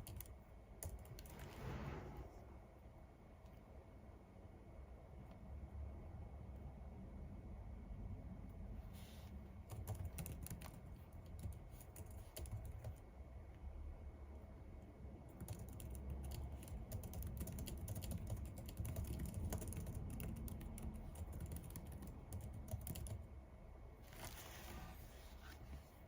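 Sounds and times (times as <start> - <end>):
typing on computer keyboard: 0.0 - 1.3, 9.7 - 13.0, 15.4 - 23.3.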